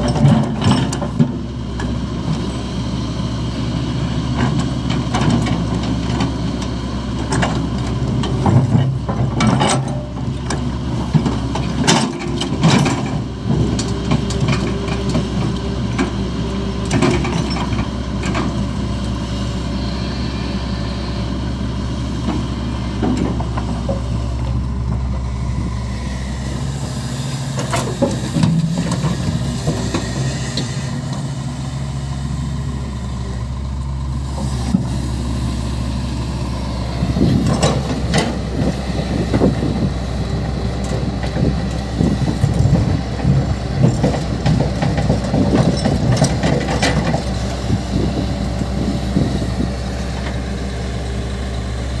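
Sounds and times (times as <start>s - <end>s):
heavy diesel engines running: 0.0s - 52.0s
knocks and clatter of soil loading: 4.2s - 19.1s, 22.1s - 25.7s, 27.5s - 31.3s, 36.9s - 51.0s.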